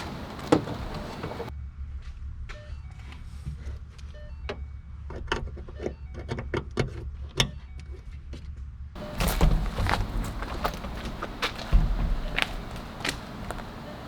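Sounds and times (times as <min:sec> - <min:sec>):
steady low hum: 0:08.6 - 0:14.0.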